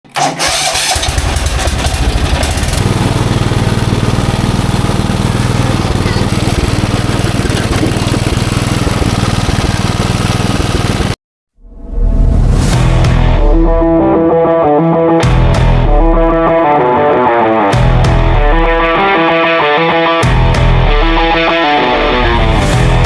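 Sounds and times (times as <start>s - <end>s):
tractor engine running: 0.0s - 11.2s.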